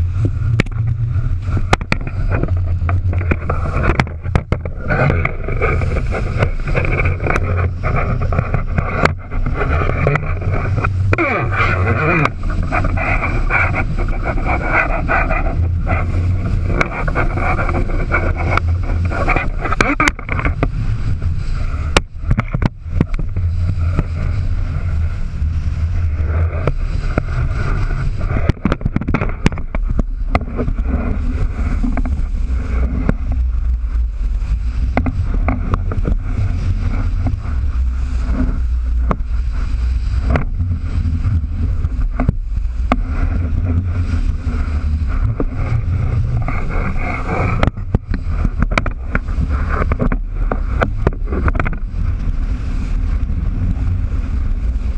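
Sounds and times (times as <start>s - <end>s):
heavy low rumble: 0.0s - 54.9s
rushing water: 0.0s - 54.9s
wind buffeting microphone: 0.0s - 54.9s.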